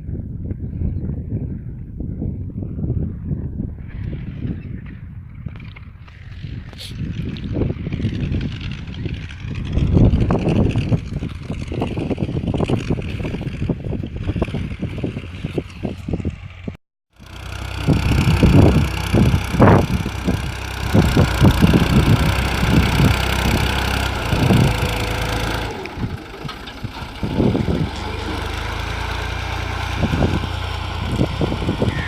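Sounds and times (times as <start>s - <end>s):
bumps and rattles: 6.6s - 32.0s
tractor engine running: 6.8s - 32.0s.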